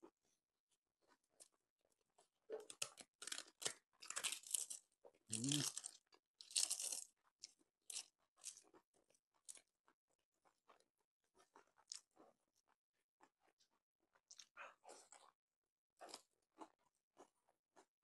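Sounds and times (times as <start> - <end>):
quiet chewing: 1.0 - 15.4, 16.0 - 17.9
crunchy bites of fried papad: 2.6 - 9.7, 16.0 - 17.9.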